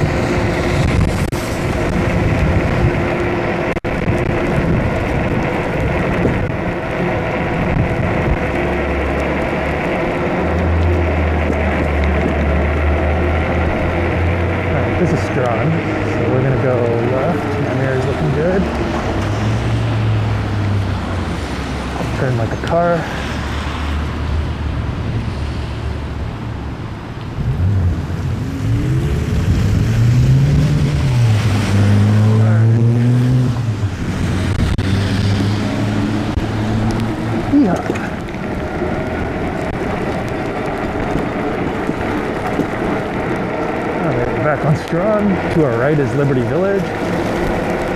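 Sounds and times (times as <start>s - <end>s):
deep low rumble: 0.0s - 22.6s
road noise: 0.0s - 47.9s
wind: 0.0s - 47.9s.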